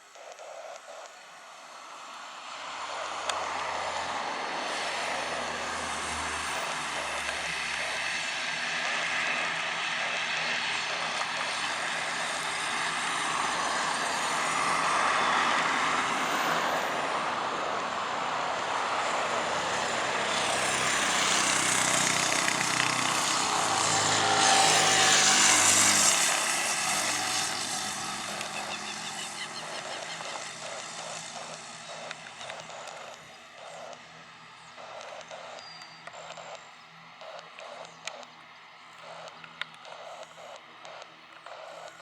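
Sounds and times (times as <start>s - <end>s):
turboprop aircraft engines passing: 0.0s - 42.0s.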